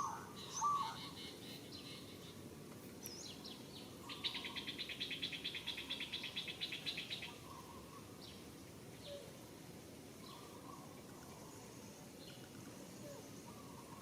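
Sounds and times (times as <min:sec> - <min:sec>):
bird trilling: 0:00.0 - 0:01.2.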